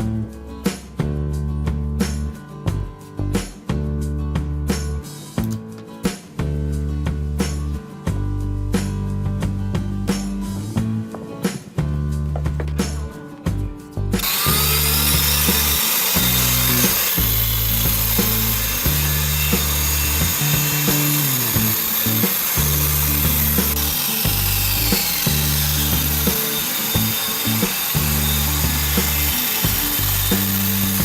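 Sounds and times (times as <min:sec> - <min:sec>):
background music with bass: 0:00.0 - 0:31.0
power tool whining on wood: 0:14.2 - 0:31.0.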